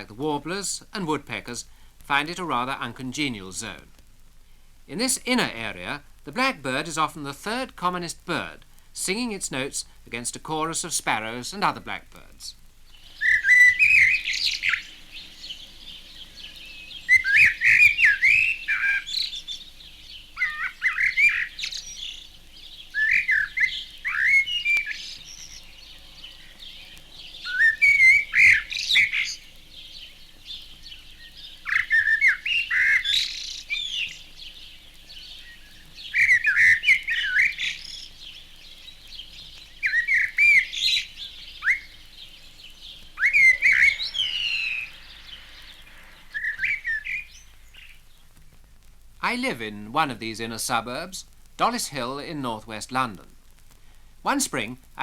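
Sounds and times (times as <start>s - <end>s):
blackbird singing: 4.9s - 48.4s
sparrows chirping: 4.9s - 48.6s.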